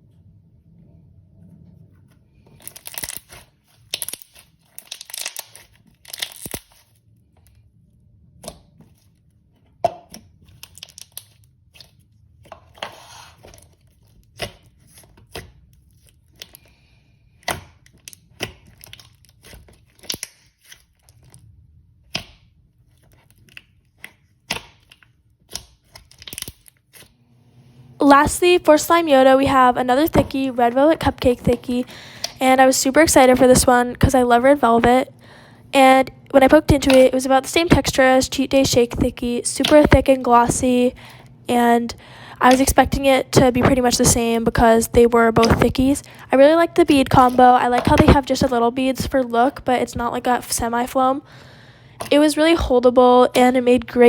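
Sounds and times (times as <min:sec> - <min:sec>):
sticky slime tearing: 0:02.6 - 0:06.9, 0:10.1 - 0:12.0, 0:17.4 - 0:27.1.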